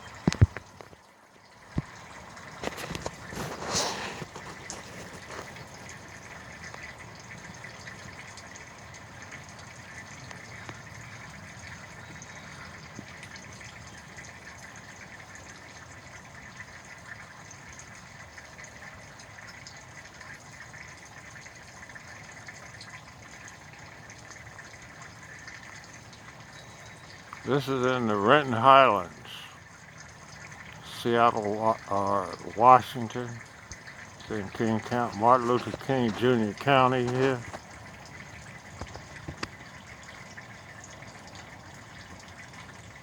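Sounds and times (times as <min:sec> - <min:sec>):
faint high hum: 0:26.4 - 0:37.6.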